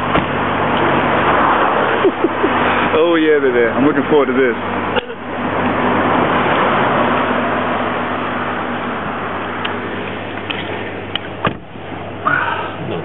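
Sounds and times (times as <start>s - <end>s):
loud rushing noise: 0.0s - 3.9s
engine idling hum: 0.0s - 13.0s.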